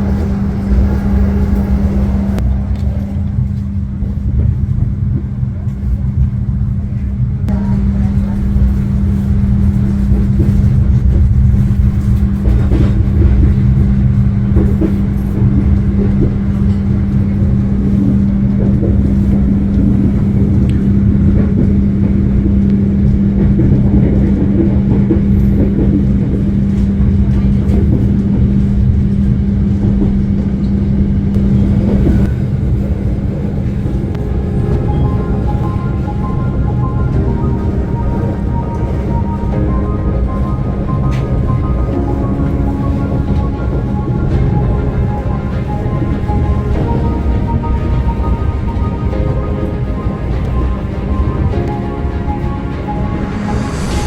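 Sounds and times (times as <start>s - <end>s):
train rumble inside carriage: 0.0s - 54.0s
steady hum: 30.6s - 54.0s.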